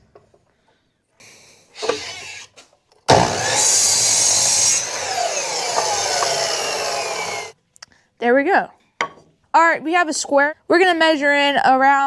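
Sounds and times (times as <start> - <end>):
power saw cutting wood: 1.2 - 7.6.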